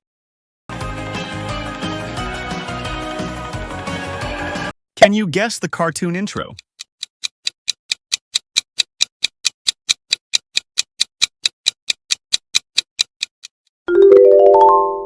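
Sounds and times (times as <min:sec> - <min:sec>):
clock-like timer ticking: 0:05.7 - 0:13.6.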